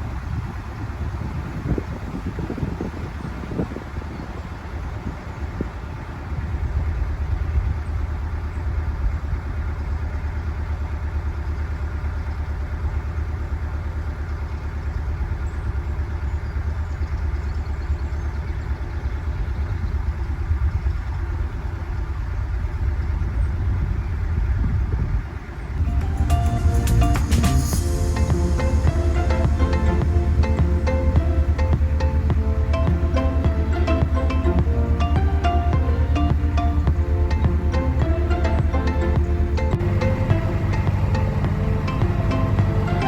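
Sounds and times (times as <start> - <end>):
boat engine chugging: 25.8 - 43.0.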